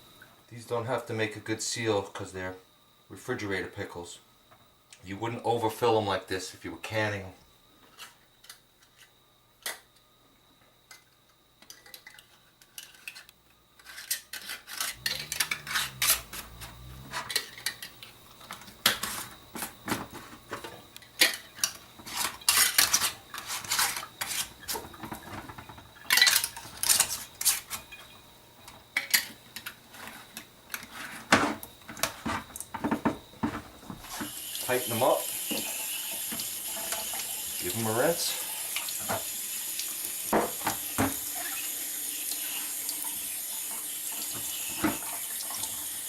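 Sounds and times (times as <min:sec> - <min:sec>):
glass jars and metal lids clinking: 0:14.9 - 0:17.9.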